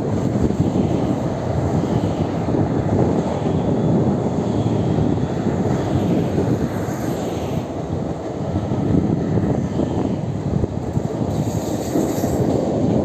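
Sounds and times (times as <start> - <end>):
steel wheels rumbling on rails: 0.0 - 13.0.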